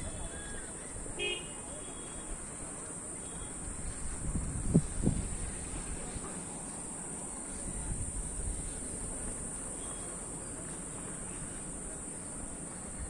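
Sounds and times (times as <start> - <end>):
high-pitched insect chorus: 1.7 - 3.8.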